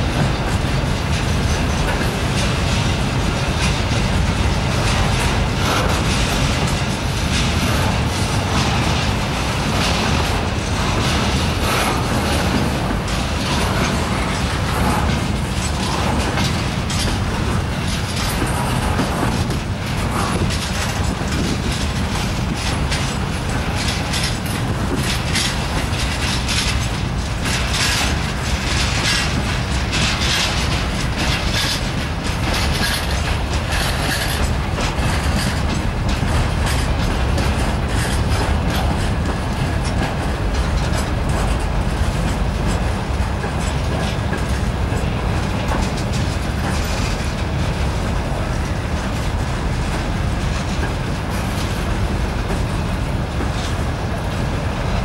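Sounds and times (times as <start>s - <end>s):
rattling clatter of wagons: 0.0s - 55.0s
wheels rumbling on rails: 0.0s - 55.0s.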